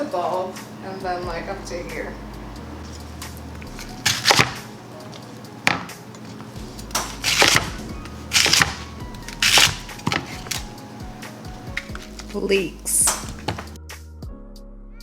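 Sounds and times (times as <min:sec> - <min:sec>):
knife cutting crunchy vegetable: 0:02.8 - 0:10.8, 0:11.6 - 0:12.5, 0:13.1 - 0:13.8.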